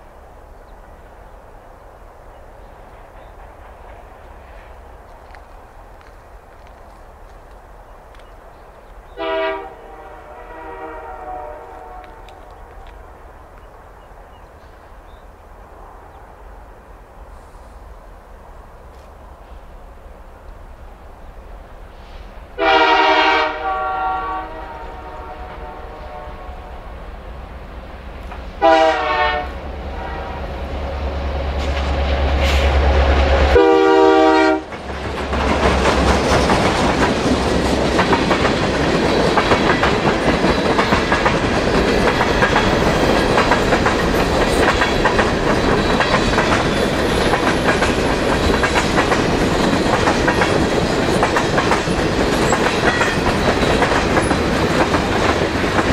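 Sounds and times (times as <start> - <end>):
locomotive air horn blasts: 9.2 - 12.4, 22.6 - 26.8, 28.6 - 30.5, 33.5 - 34.7.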